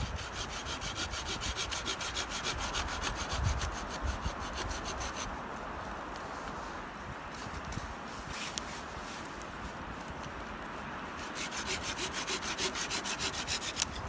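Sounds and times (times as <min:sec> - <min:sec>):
hand saw cutting wood: 0:00.0 - 0:05.3, 0:11.2 - 0:14.0.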